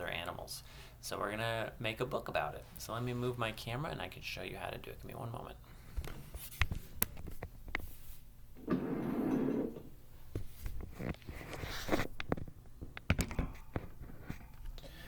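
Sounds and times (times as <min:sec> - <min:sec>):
scrape: 0:10.6 - 0:12.1.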